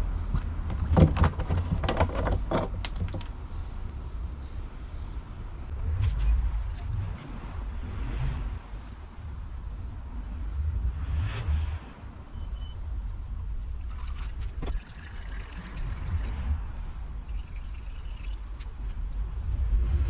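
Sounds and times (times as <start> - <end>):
low rumble: 3.7 - 14.6, 18.4 - 20.0.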